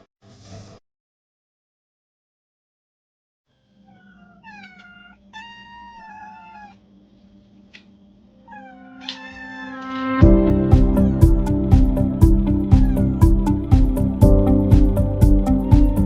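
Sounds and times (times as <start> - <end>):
kitten meowing: 3.9 - 6.8, 8.5 - 10.2, 12.7 - 13.4, 15.4 - 16.0
background music with a beat: 9.8 - 16.0.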